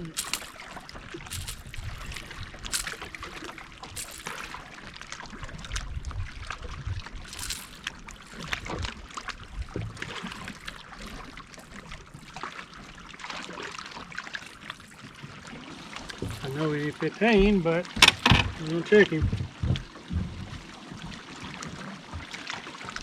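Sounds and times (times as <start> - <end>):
water lapping against hull: 0.0 - 23.0
small knocks and clicks: 18.0 - 18.6.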